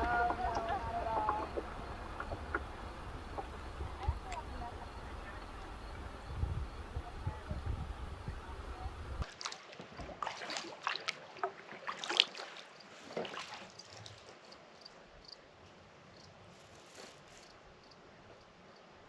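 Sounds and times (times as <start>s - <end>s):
water dripping: 0.0s - 9.2s
kayak paddle splashing water: 0.0s - 14.2s.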